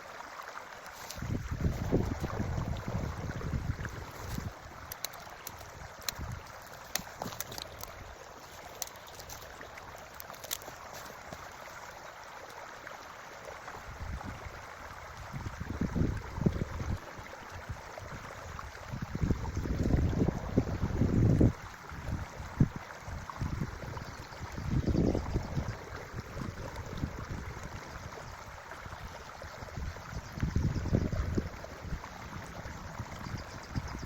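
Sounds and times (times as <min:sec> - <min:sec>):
creek water running: 0:00.0 - 0:34.0
wind buffeting microphone: 0:01.2 - 0:05.0, 0:15.2 - 0:28.4, 0:29.0 - 0:34.0
faint clicks: 0:04.0 - 0:12.6.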